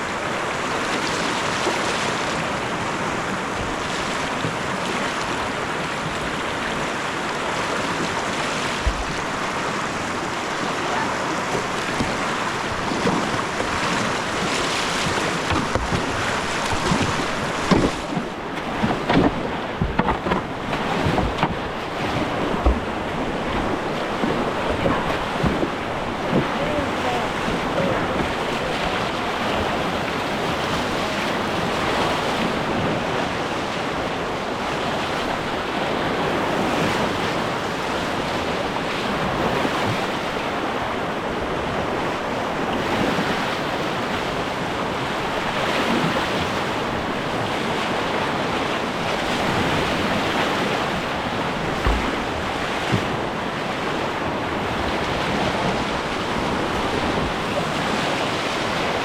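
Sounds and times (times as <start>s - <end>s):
river whitewater rushing: 0.0s - 59.0s
short knocks: 8.8s - 9.6s, 11.4s - 21.8s, 51.6s - 53.3s.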